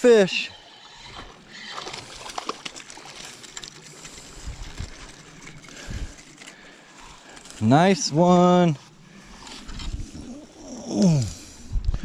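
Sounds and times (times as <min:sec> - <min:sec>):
water splashes: 0:00.0 - 0:05.9
river water running: 0:00.0 - 0:09.6.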